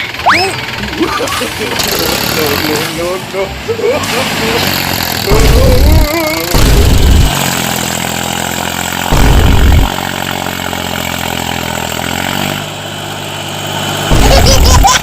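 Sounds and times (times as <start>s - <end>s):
small tractor engine running: 0.0s - 15.0s
low rumbling bursts: 5.3s - 7.5s, 9.0s - 10.2s.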